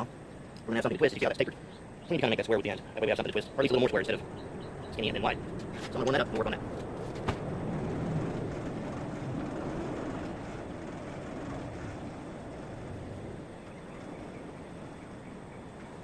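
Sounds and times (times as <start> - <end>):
forge rushing: 2.3 - 15.0.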